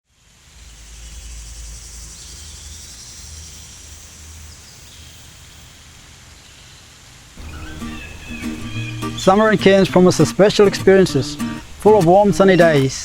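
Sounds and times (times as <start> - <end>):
high insect hiss: 0.1 - 13.0
faint short calls: 7.4 - 13.0.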